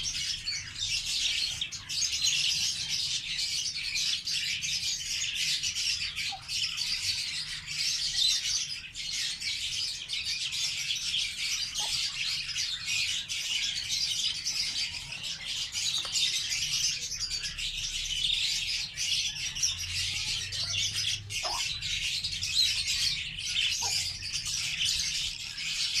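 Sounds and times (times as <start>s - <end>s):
lovebirds chirping: 0.0s - 26.0s
lower bird calls: 0.0s - 26.0s.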